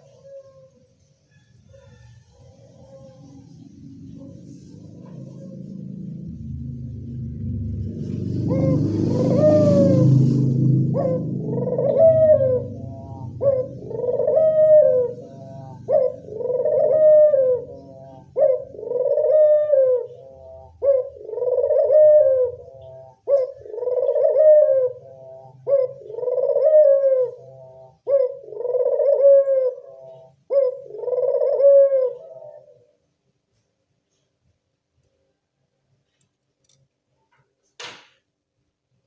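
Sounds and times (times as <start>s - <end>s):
dove cooing: 0.0s - 0.8s, 1.4s - 6.3s, 8.0s - 33.0s.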